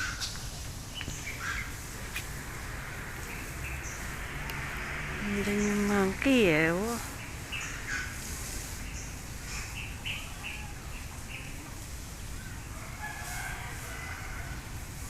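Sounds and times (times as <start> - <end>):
birds calling: 0.0 - 11.6
low outdoor rumble: 0.0 - 15.0.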